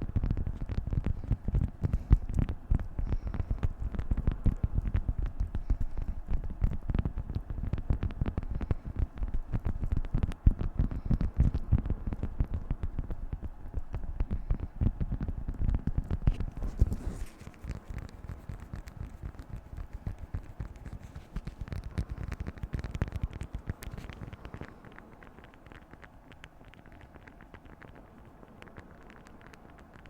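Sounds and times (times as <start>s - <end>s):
wax wrap crinkling: 0.1s - 30.0s.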